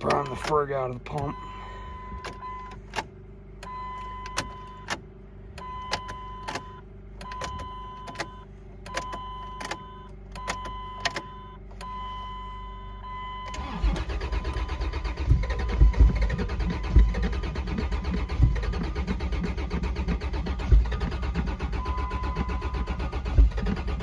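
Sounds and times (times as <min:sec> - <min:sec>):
fuel pump priming tone: 0:00.0 - 0:05.0, 0:05.6 - 0:24.0
ignition clicks: 0:00.0 - 0:24.0
starter cranking engine: 0:13.5 - 0:24.0.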